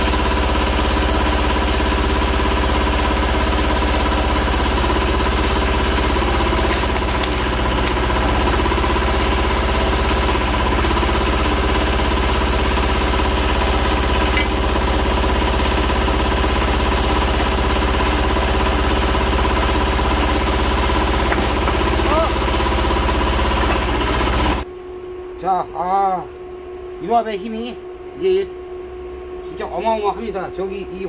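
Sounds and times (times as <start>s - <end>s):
tractor diesel engine running: 0.0s - 24.7s.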